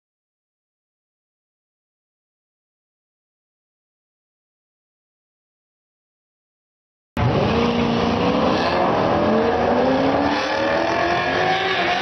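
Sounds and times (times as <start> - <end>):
car engine accelerating: 7.2 - 12.0
road noise: 7.2 - 12.0.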